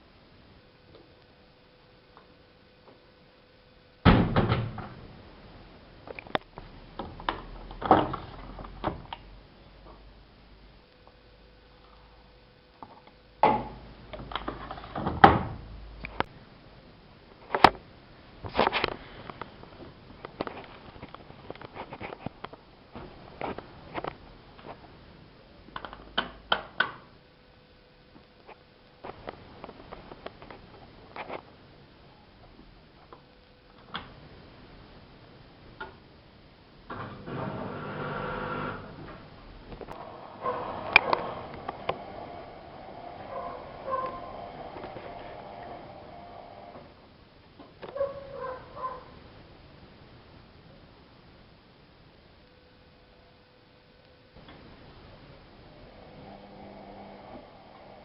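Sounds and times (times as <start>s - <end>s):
washing machine motor humming: 36.9s - 47.0s, 54.4s - 58.0s.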